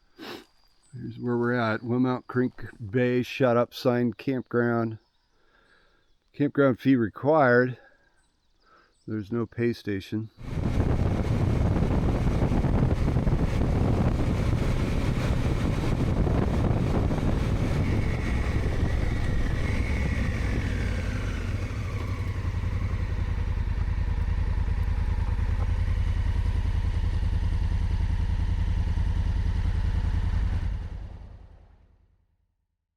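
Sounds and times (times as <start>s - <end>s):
motorcycle engine running: 10.4s - 31.9s.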